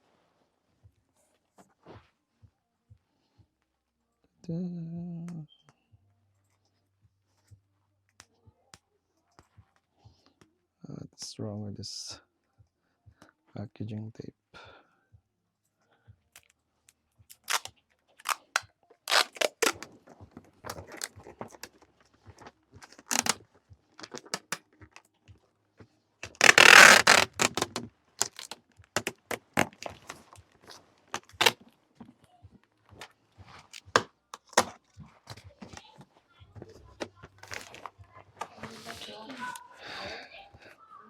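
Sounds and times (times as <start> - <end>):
packing tape tearing rip: 17.3 - 21.7, 22.8 - 23.4, 24.0 - 25.0, 26.2 - 30.4, 31.1 - 31.6, 33.0 - 34.8
packing tape clicks and crackles: 17.3 - 25.2, 26.2 - 31.6, 33.0 - 35.9, 37.0 - 38.6.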